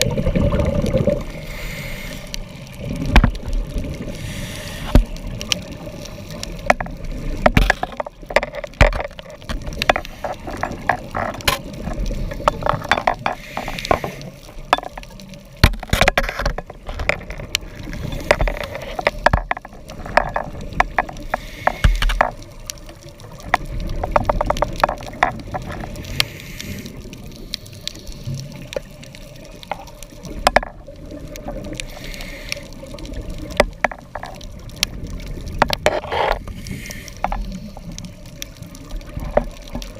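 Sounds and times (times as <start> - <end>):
exhaled bubbles hissing: 0.0 - 15.6, 16.2 - 39.9
sharp underwater clicks and crackles: 0.0 - 39.9
diver regulator breathing: 1.3 - 2.5, 4.0 - 5.2, 9.8 - 11.3, 12.5 - 15.0, 21.0 - 22.4, 25.8 - 28.6, 31.8 - 32.8, 35.9 - 38.1.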